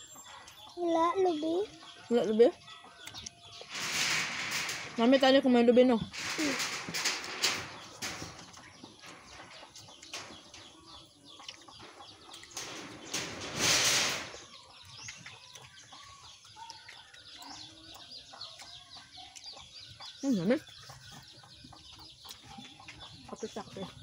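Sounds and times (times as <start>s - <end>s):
rustling: 3.6s - 10.6s, 12.5s - 14.6s
faint chicken clucking: 8.0s - 12.8s, 14.4s - 24.0s.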